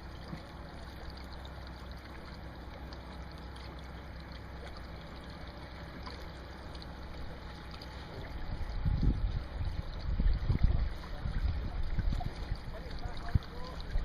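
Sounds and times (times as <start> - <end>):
rushing water: 0.0 - 14.0
low rumble: 6.0 - 14.0.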